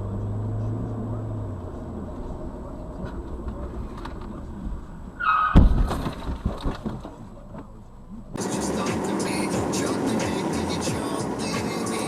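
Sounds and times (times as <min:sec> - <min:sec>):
car rumbling on road: 0:00.0 - 0:12.0
tire squeal: 0:05.1 - 0:05.7
car collision bang: 0:05.3 - 0:07.2.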